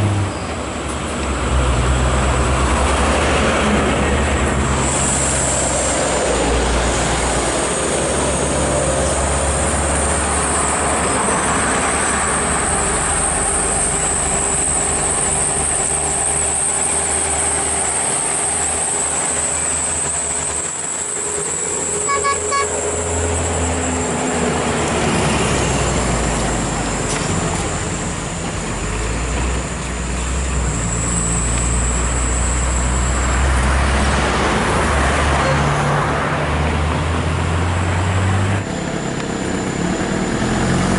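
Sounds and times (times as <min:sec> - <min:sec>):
road and traffic noise: 0:00.0 - 0:40.9
truck diesel engines running: 0:00.0 - 0:40.9
pulsed horn toot: 0:21.0 - 0:24.2.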